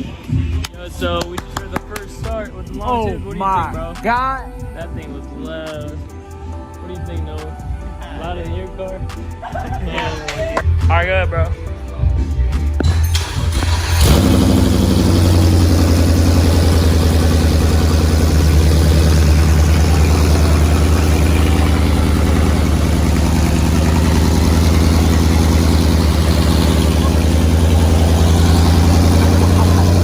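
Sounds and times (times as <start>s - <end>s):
engine starting and idling loudly: 12.8s - 30.0s.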